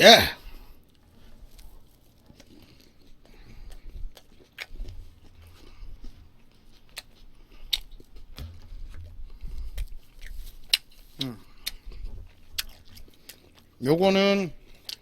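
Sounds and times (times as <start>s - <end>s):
person chewing food: 0.0s - 15.0s
wet mouth clicks: 6.8s - 13.7s.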